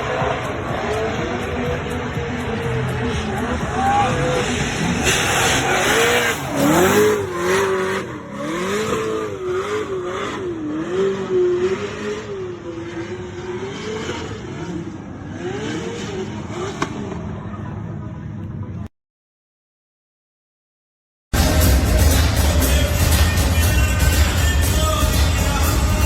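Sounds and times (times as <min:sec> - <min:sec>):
car engine revving: 0:00.0 - 0:17.5
loud road noise: 0:00.0 - 0:18.9, 0:21.4 - 0:26.0.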